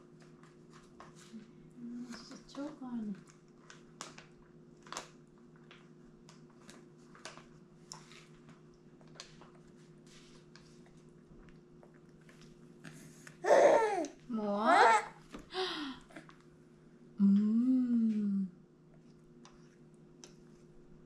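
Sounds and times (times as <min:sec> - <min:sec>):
steady low hum: 0:05.2 - 0:21.0.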